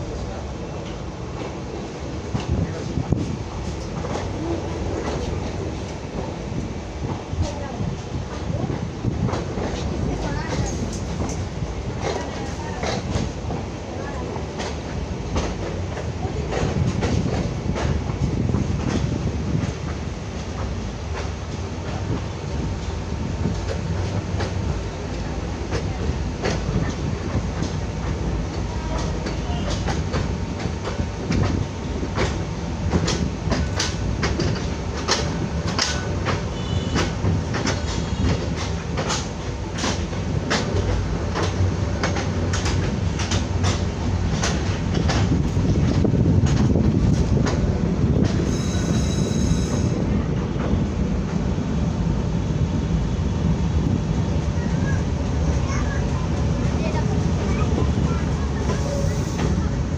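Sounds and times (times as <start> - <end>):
train wheels rumbling: 0.0 - 59.9
wheels clicking over rail joints: 23.4 - 51.4.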